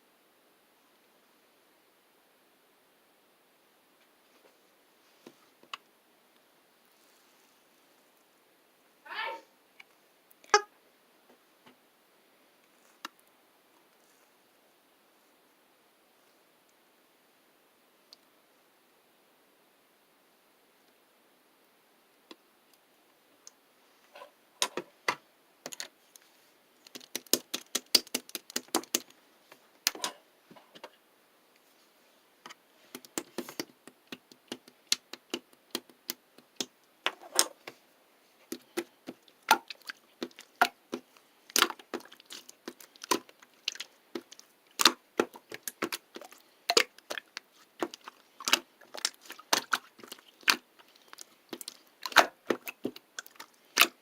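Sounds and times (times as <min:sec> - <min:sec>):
sharp irregular clicks and taps: 0:26.8 - 0:29.1, 0:32.4 - 0:37.5, 0:38.5 - 0:54.0.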